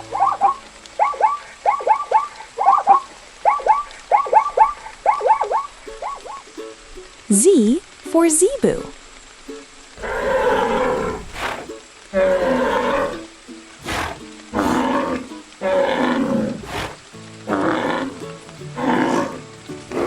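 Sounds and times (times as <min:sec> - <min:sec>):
background music: 0:00.0 - 0:01.2, 0:11.7 - 0:20.0
cattle lowing: 0:10.0 - 0:20.0.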